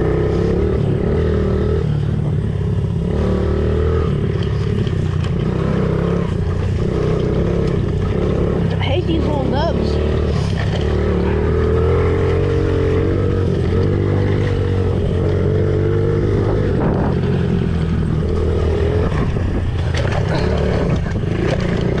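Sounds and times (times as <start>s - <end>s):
small motorcycle engine running: 0.0s - 22.0s.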